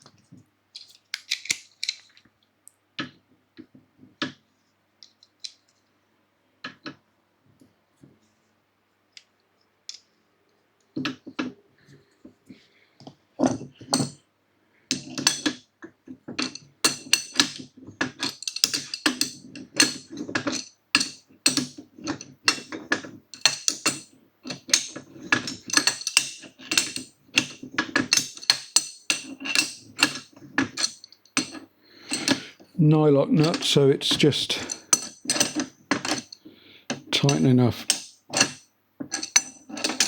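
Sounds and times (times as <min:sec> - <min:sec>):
tools clinking on steel: 0:34.5 - 0:40.0.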